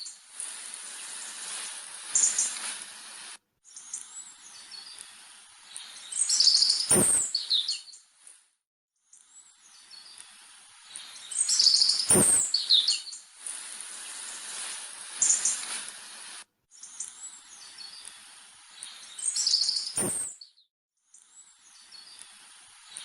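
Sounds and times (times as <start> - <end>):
light steady hiss: 0.0 - 8.5, 9.3 - 20.3, 21.4 - 23.0
songbird chirps and trills: 3.7 - 8.1, 9.1 - 13.3, 16.7 - 23.0.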